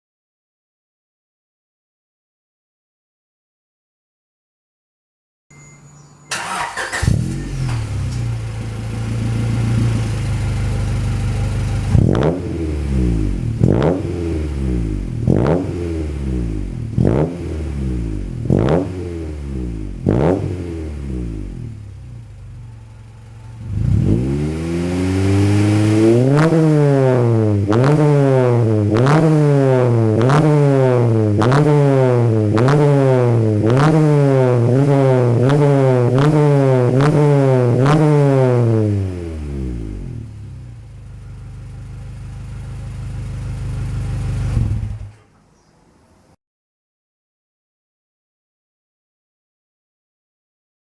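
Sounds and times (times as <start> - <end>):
car engine revving: 6.3 - 45.2.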